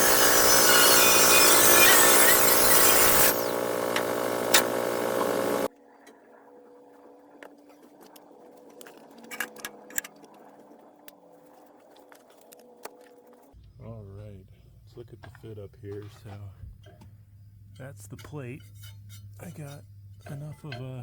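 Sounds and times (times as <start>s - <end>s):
power grinder on steel plate: 0.0s - 5.7s.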